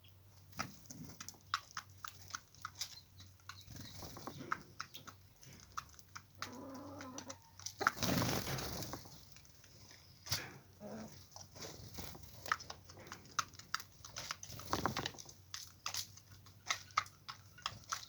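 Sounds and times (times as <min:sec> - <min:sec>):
poultry clicks and taps: 0:00.6 - 0:07.9, 0:12.4 - 0:18.0.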